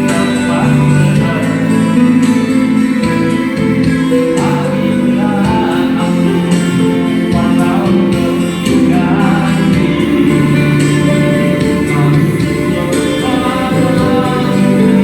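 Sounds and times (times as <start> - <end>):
instrumental accompaniment: 0.0 - 15.0
person singing: 0.0 - 15.0.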